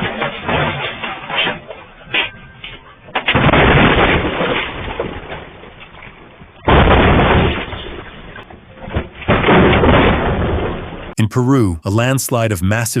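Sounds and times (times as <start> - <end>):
loud electrical blasts: 3.1 - 5.8.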